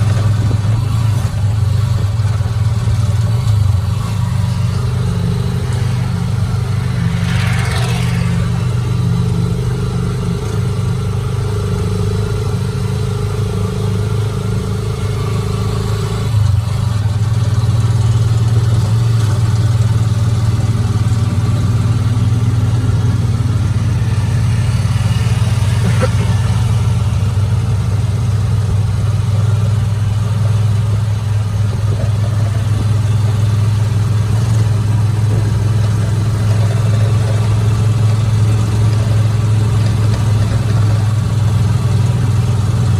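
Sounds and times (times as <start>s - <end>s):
vehicle engine running: 0.0s - 42.9s
rushing sound falling in pitch: 4.7s - 9.6s.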